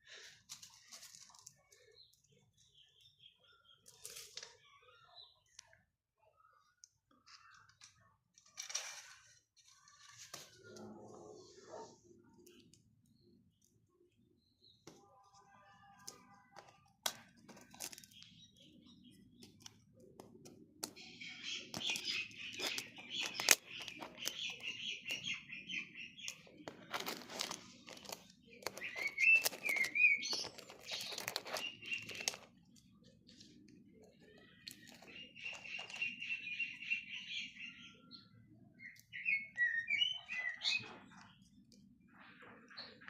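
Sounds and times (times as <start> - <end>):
raven clicks: 19.2 - 25.5.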